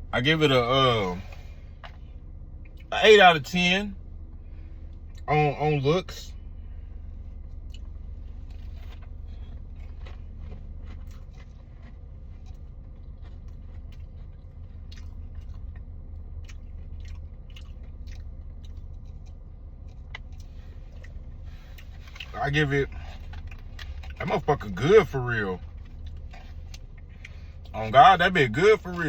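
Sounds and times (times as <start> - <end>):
low hum: 0.0 - 29.0
person chewing crunchy sandwich: 6.8 - 27.8
short crunches: 7.5 - 27.8.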